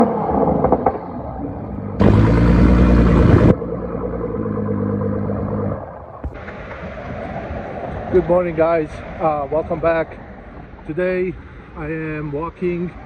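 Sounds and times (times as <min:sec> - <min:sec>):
car engine and exhaust running: 0:02.0 - 0:06.4.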